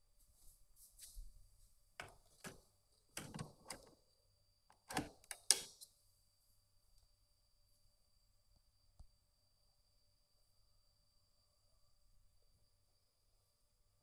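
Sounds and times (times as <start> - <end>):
short clicks and knocks: 2.0 - 2.6, 3.2 - 4.0, 4.7 - 5.8.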